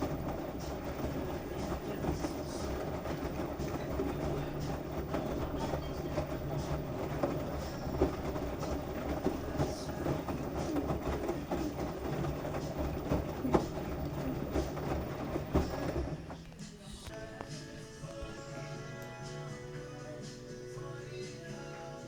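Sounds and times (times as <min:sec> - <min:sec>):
washing machine drum humming: 0:00.0 - 0:21.7.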